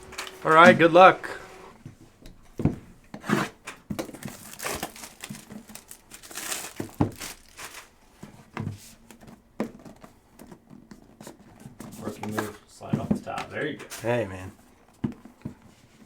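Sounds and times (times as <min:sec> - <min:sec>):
plastic wrapping crinkling and tearing: 0:04.0 - 0:08.0.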